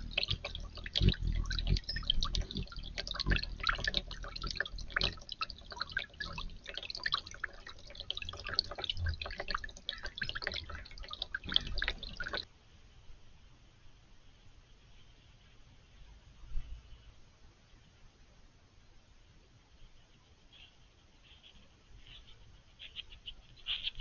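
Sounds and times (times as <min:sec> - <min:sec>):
fountain water dripping and splashing: 0:00.0 - 0:12.5.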